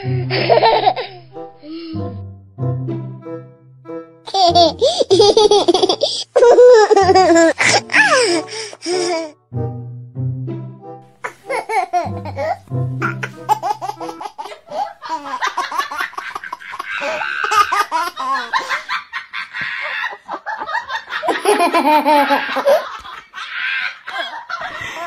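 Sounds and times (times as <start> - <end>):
person laughing hard: 0.0 - 1.9, 4.3 - 9.3, 11.3 - 25.0
low music notes: 0.0 - 14.8.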